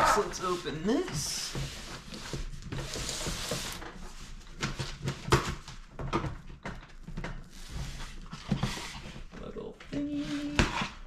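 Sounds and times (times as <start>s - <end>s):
packaging rustling and sliding: 0.0s - 5.1s.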